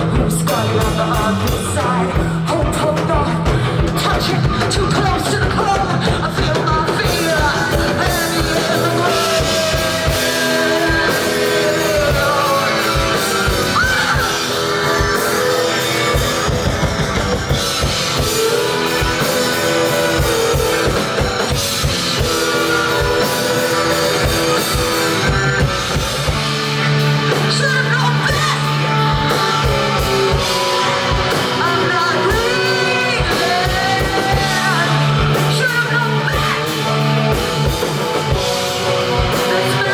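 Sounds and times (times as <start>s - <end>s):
drum kit: 0.0s - 39.9s
guitar: 0.0s - 39.9s
person singing or wailing: 0.0s - 39.9s.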